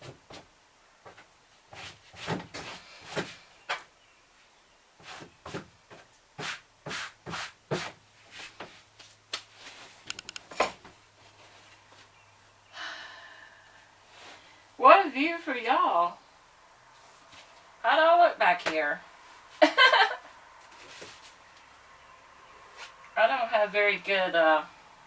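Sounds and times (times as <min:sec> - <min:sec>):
paintbrush swishing against wall: 0:06.4 - 0:10.0
small clicks: 0:10.1 - 0:10.5.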